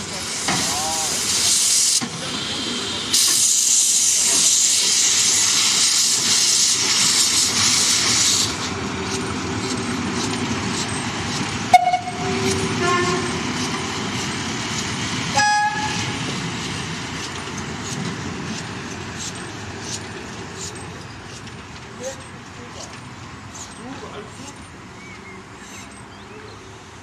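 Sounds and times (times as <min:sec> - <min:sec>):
steam locomotive hissing steam: 0:00.0 - 0:27.0
steam whistle toots: 0:11.7 - 0:13.4, 0:15.3 - 0:16.1.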